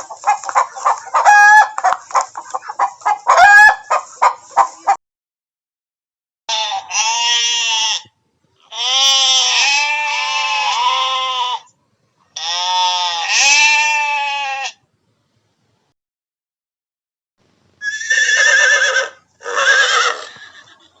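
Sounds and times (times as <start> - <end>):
animal bleating: 6.5 - 11.7, 12.4 - 14.8, 17.8 - 20.7.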